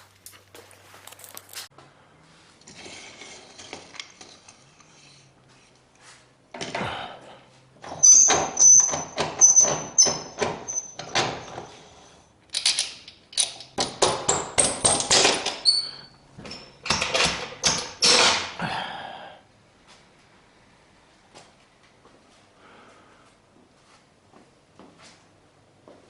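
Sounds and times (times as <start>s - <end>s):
hard objects clinking and scraping: 2.6s - 5.7s.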